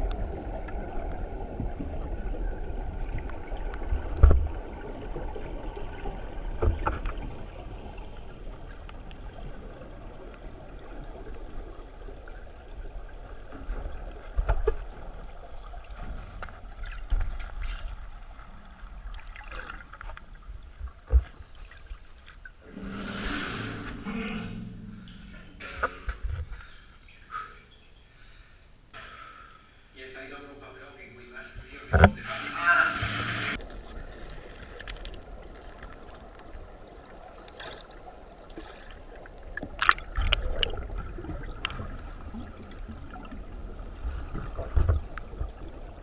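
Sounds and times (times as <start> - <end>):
dull low thumps: 23.7 - 26.6.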